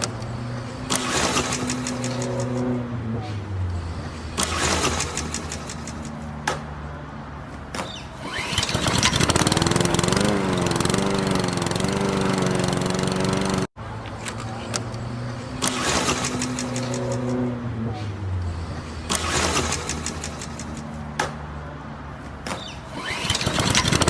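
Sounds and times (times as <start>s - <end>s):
lawnmower engine running: 8.2s - 13.7s, 23.0s - 24.0s.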